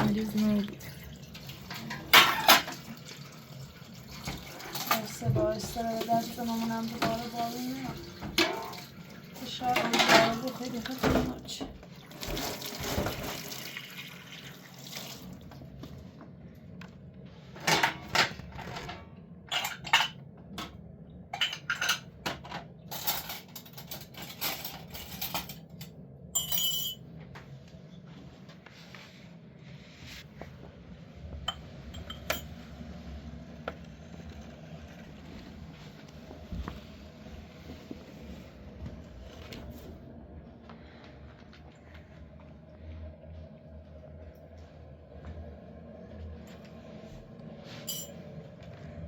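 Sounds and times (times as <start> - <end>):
dishes and kitchenware clinking: 1.6 - 3.0, 8.0 - 13.3, 17.6 - 20.7, 21.3 - 27.0, 31.5 - 32.6, 47.7 - 48.2.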